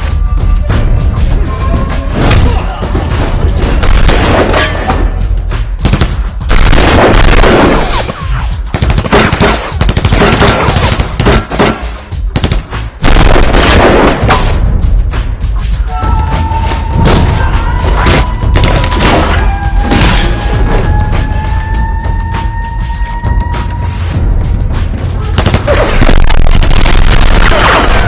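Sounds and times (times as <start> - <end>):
film soundtrack music: 0.0 - 28.0
machine-gun fire: 5.9 - 8.1, 12.4 - 14.3, 25.4 - 28.0.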